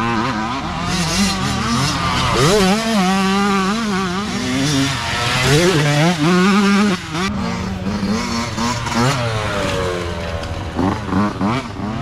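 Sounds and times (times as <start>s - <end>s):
dirt bike engines revving past: 0.0s - 12.0s.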